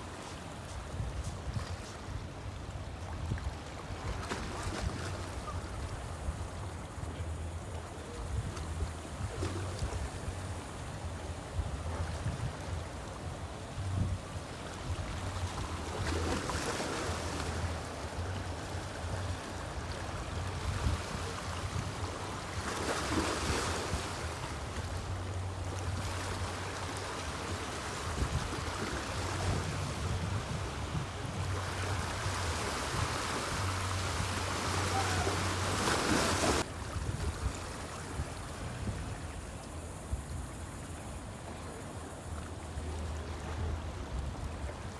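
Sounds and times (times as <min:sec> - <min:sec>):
water noise: 0:00.0 - 0:44.9
wind: 0:00.0 - 0:44.9.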